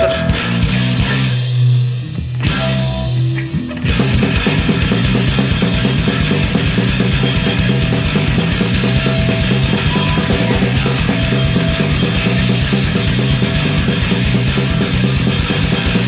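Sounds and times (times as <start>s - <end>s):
bass guitar: 0.0s - 16.0s
distorted guitars: 0.0s - 16.0s
fast steady drumming: 3.9s - 16.0s.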